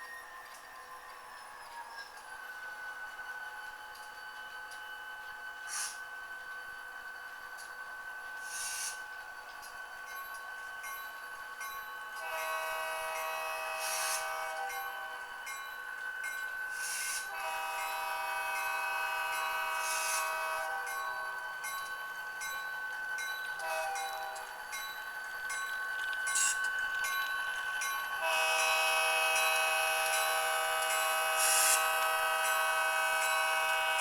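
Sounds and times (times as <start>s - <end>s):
sampled diesel locomotive horn: 12.2s - 15.2s, 17.2s - 20.9s, 23.6s - 24.4s, 28.2s - 34.0s.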